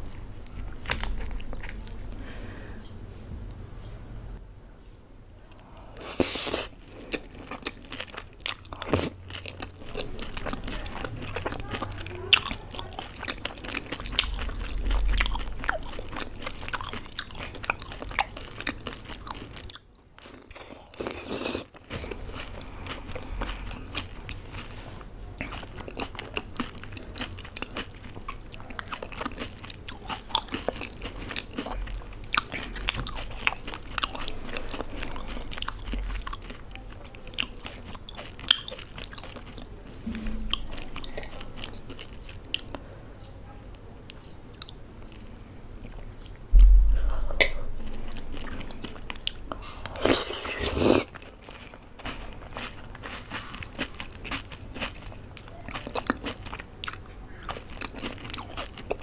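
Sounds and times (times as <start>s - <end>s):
chewing crunchy food: 0.0s - 3.3s, 5.3s - 43.4s, 44.0s - 59.0s.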